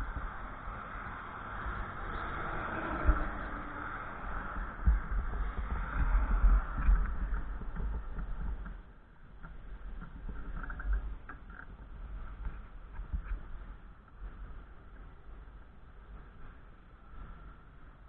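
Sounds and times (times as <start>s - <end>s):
wind buffeting microphone: 0.0s - 18.0s
faint ticks: 6.8s - 15.0s.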